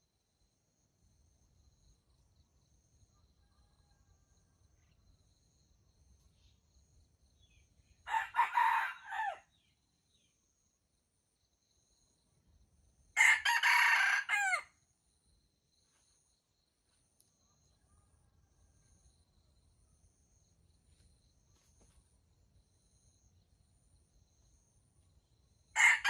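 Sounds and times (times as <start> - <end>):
rooster crowing: 8.1 - 9.5, 13.2 - 14.7, 25.8 - 26.0
insects chirping: 14.3 - 26.0.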